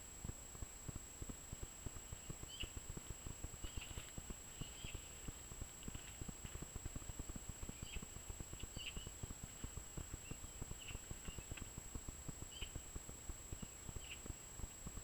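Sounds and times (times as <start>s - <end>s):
rapid irregular low tapping: 0.0s - 15.0s
small bird chirping: 2.0s - 6.3s, 6.9s - 11.8s, 12.4s - 12.9s, 13.5s - 14.5s.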